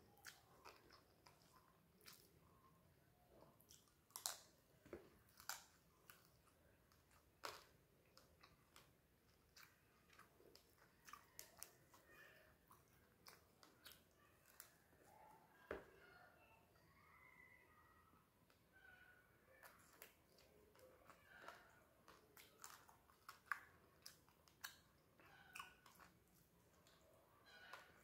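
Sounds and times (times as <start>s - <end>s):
crunchy chewing and biting: 3.4s - 15.0s, 19.6s - 28.0s.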